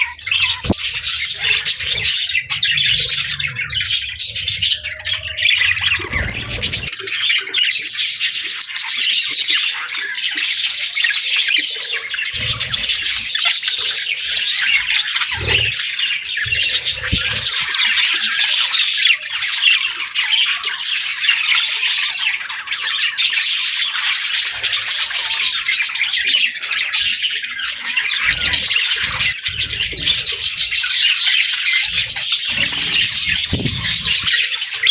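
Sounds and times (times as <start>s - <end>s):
budgerigars chattering: 0.0s - 34.9s.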